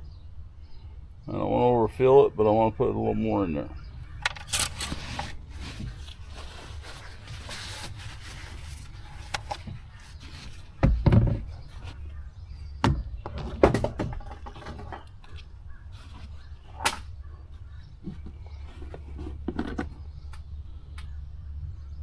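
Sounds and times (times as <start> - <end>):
knocks and clunks of handled items: 4.2 - 12.1, 12.8 - 17.2, 17.9 - 20.5.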